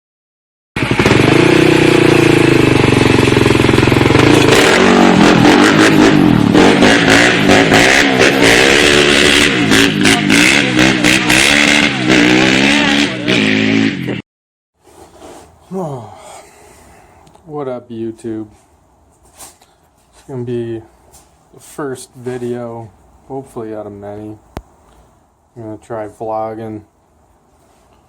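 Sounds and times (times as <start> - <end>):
motorcycle engine revving: 0.8 - 14.2.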